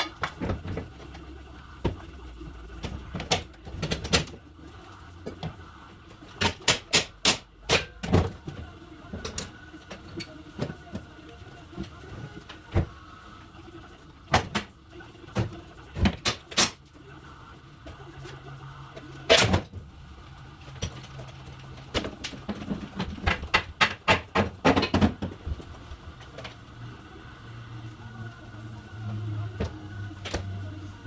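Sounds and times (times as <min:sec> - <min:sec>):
sharp knocks and clanks: 0:22.0 - 0:25.6.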